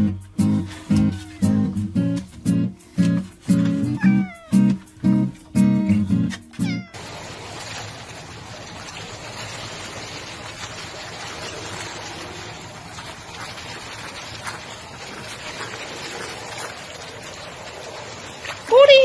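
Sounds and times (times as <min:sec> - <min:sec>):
pool water splashing and lapping: 0:06.6 - 0:19.0.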